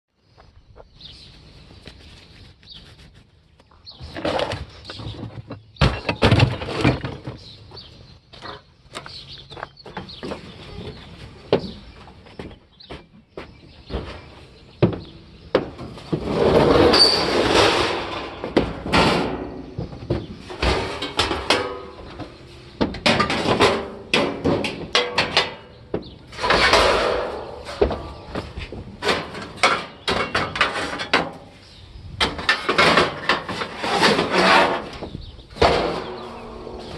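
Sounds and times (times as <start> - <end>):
metal clanking and rattling: 15.6 - 31.5, 32.2 - 36.9.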